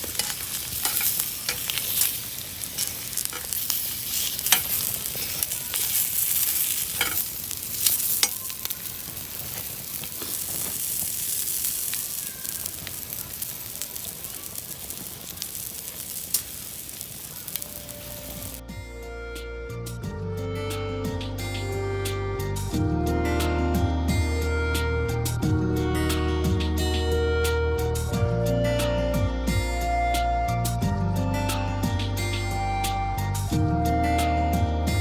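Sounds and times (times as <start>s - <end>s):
fire popping and crackling: 0.0s - 18.6s
sausages sizzling: 0.0s - 18.6s.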